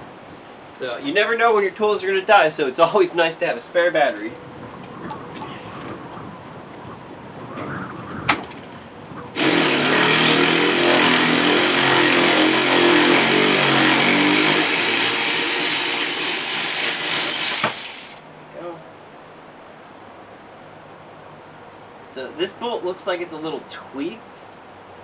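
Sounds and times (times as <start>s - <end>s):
impact wrench running: 9.4s - 18.2s.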